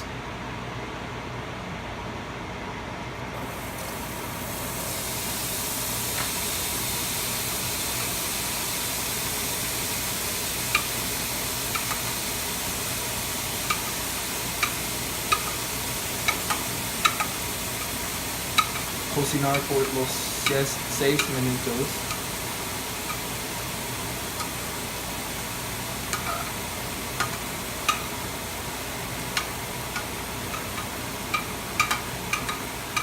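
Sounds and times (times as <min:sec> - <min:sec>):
vegetables sizzling in a skillet: 0:03.4 - 0:33.0
utensil clicking against pan: 0:10.7 - 0:10.9, 0:11.7 - 0:12.1, 0:14.6 - 0:15.6, 0:16.2 - 0:17.9, 0:18.5 - 0:18.9, 0:20.4 - 0:21.4, 0:26.1 - 0:26.5, 0:27.2 - 0:28.1, 0:29.3 - 0:33.0.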